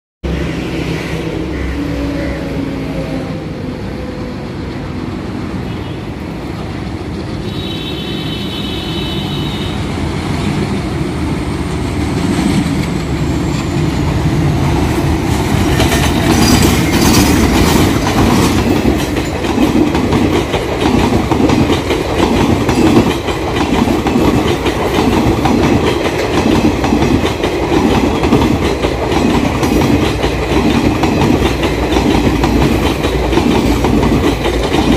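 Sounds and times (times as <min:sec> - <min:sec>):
diesel locomotive engines: 0:00.2 - 0:34.9
train horn: 0:01.3 - 0:03.7, 0:07.4 - 0:09.9
wheels clacking over rail joints: 0:11.6 - 0:34.9.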